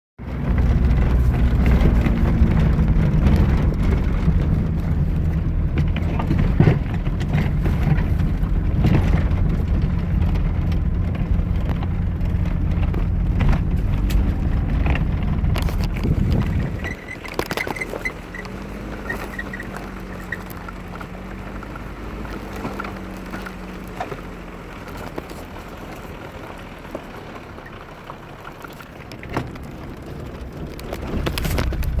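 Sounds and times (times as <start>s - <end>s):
car engine rumbling: 0.2s - 32.0s
crackling and ticking: 0.2s - 32.0s.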